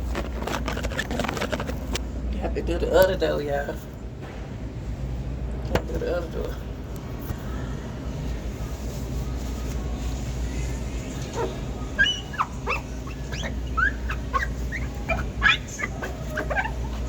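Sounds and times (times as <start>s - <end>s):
steady low hum: 0.0s - 17.0s
high squeaks wiping glass door: 11.2s - 17.0s.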